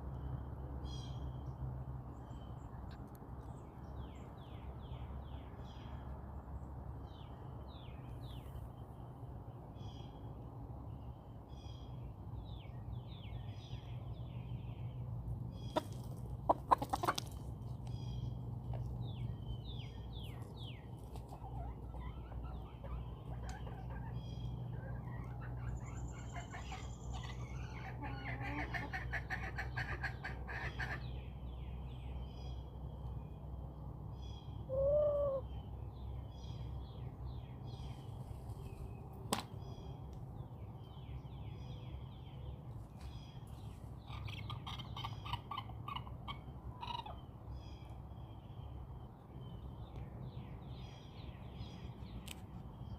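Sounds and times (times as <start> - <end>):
birds chirping: 11.8 - 33.4
chickens clucking: 15.6 - 19.0, 20.1 - 31.2, 44.0 - 47.3.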